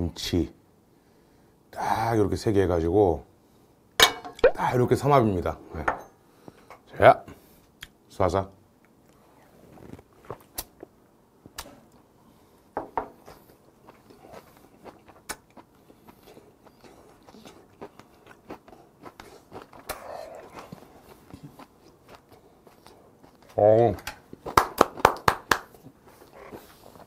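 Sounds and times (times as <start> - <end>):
man chewing food: 8.8 - 25.0, 25.6 - 27.0.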